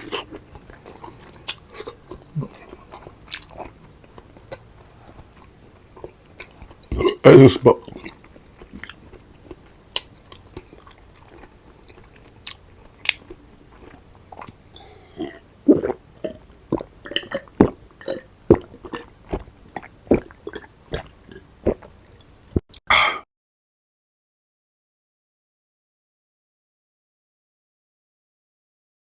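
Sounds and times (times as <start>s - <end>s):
person chewing food: 0.0s - 23.2s.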